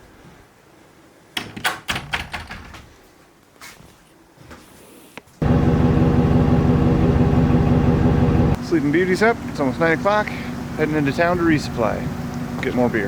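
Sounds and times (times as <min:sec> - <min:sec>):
knocks and clatter: 0:01.4 - 0:03.0
vehicle engine drone: 0:05.4 - 0:13.0.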